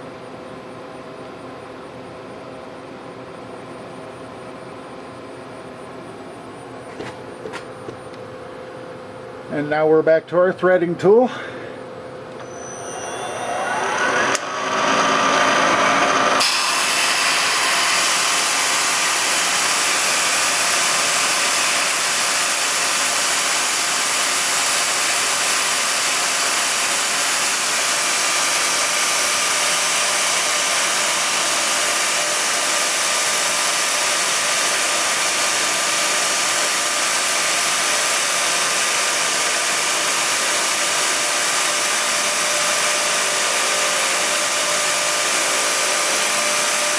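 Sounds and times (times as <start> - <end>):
power threading tool running: 12.3 - 46.9.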